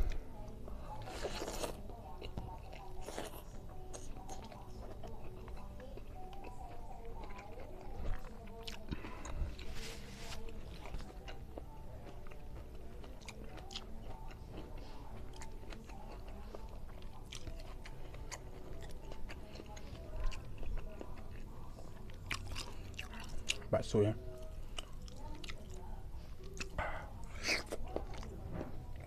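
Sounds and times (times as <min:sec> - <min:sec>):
person chewing food: 0:00.0 - 0:29.0
soft background music: 0:00.0 - 0:29.0.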